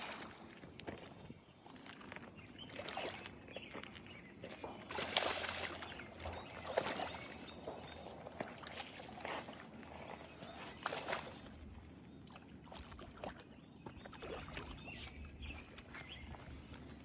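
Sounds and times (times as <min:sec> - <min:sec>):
bird chirping: 0:05.6 - 0:08.7.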